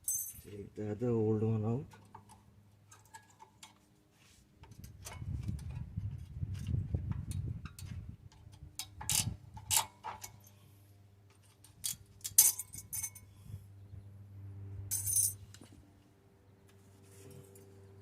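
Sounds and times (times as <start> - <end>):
metal clips clicking and clinking: 11.6 - 13.2.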